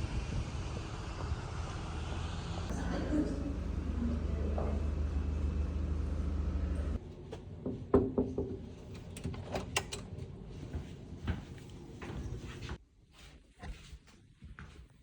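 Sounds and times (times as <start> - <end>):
bus engine rumble: 0.0 - 7.9.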